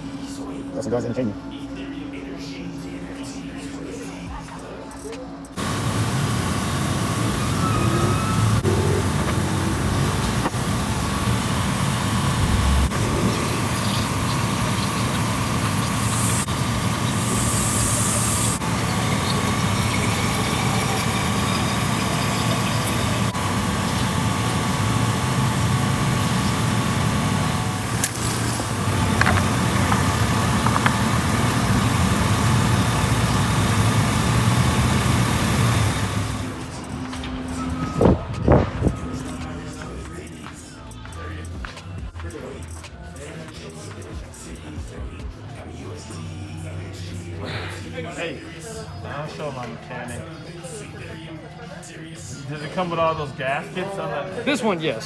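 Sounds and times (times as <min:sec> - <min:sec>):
car engine running: 0:05.5 - 0:40.4
road noise: 0:05.6 - 0:40.8.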